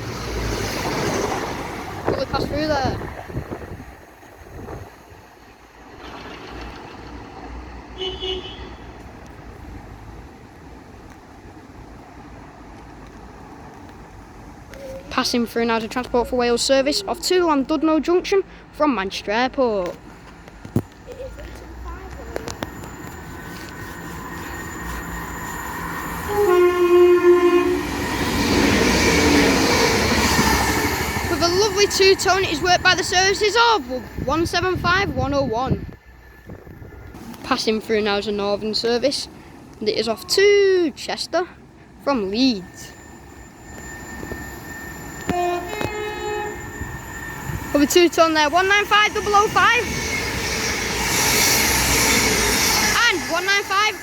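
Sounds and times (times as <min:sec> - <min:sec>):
outdoor noise: 0:00.0 - 0:54.0
train rumbling: 0:00.0 - 0:54.0
two-tone train horn: 0:08.0 - 0:09.0, 0:26.1 - 0:28.0, 0:45.2 - 0:47.6.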